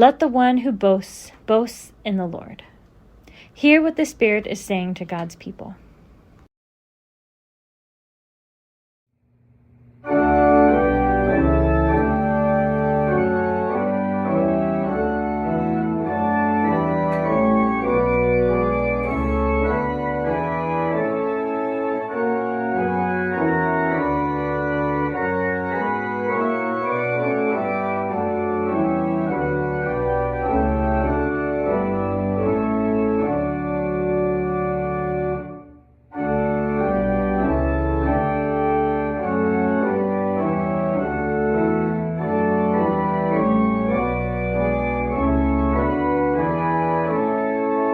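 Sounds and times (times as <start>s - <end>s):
organ playing a hymn: 10.0s - 47.9s.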